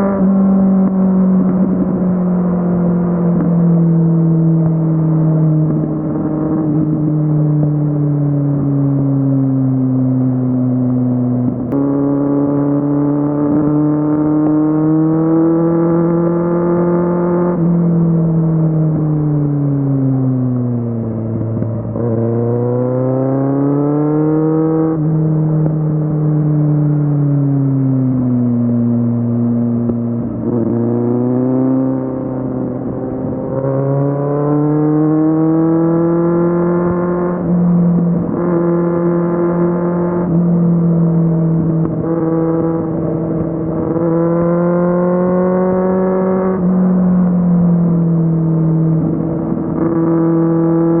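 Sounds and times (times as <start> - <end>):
motorcycle engine under throttle: 11.5 - 19.9, 28.9 - 51.0.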